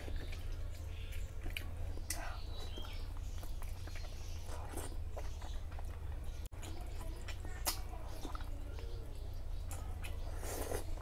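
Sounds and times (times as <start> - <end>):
wet chewing and lip smacks: 0.0 - 11.0.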